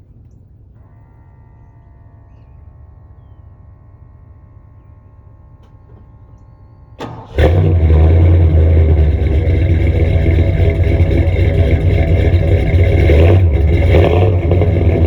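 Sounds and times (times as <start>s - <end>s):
faint hum: 0.0s - 7.1s
engine cranking: 7.0s - 15.0s
engine running loud: 7.0s - 15.0s.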